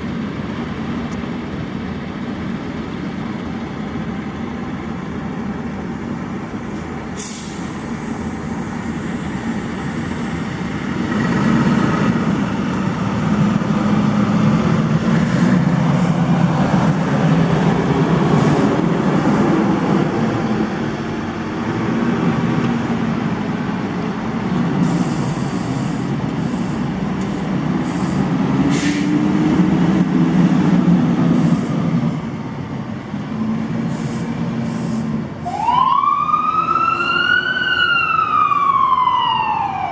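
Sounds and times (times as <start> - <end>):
short sharp clicks or hisses: 6.7 - 7.8, 24.8 - 29.1, 33.9 - 35.1.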